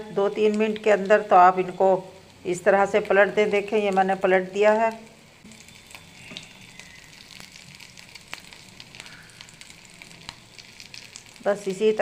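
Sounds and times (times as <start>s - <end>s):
food sizzling in hot oil: 0.0s - 12.0s
oil popping and crackling: 0.0s - 12.0s.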